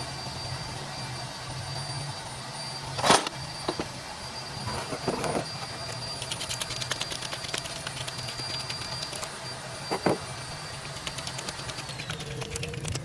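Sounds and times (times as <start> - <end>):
steady low hum: 0.0 - 13.0
rapid light ticks: 6.2 - 9.3, 10.7 - 13.0.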